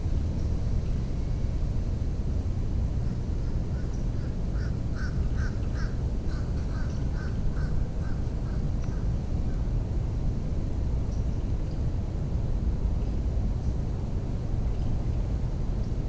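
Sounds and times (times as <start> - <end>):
steady low rumble: 0.0 - 16.0
crow-like bird calling: 3.1 - 9.6.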